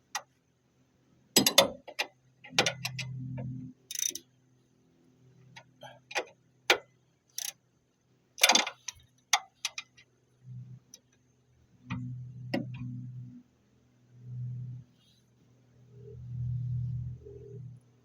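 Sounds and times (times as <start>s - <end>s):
metal parts clicking and clanking: 1.4s - 3.2s, 3.9s - 4.2s, 7.3s - 7.6s, 8.4s - 10.0s
low hum: 10.3s - 18.0s.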